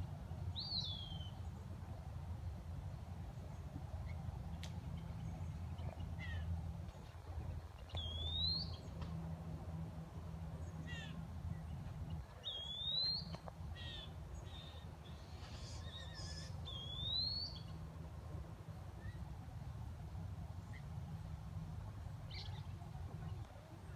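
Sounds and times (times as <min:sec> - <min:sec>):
steady low hum: 0:00.0 - 0:23.9
faint bird chirps: 0:07.8 - 0:09.0, 0:12.2 - 0:17.8.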